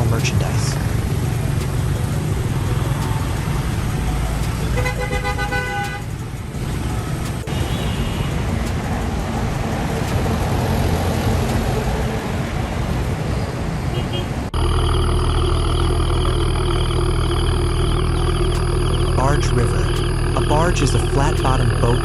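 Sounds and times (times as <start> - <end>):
vehicle engine running: 0.0 - 13.2, 14.5 - 22.0
road noise: 0.0 - 22.0
horn honking: 2.1 - 8.7, 13.9 - 22.0
faint tone: 14.6 - 22.0.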